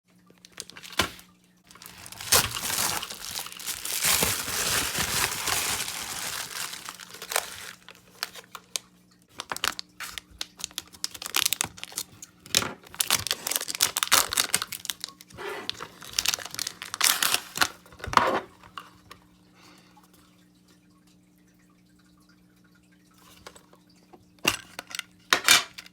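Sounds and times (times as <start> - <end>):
faint steady hum: 0.1 - 25.9
packaging rustling and crinkling: 0.4 - 8.8, 9.4 - 18.5.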